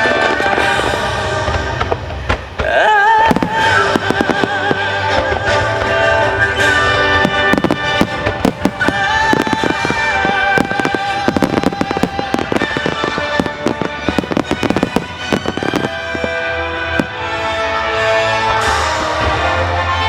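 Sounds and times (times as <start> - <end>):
fireworks bursting and crackling: 0.0 - 19.7.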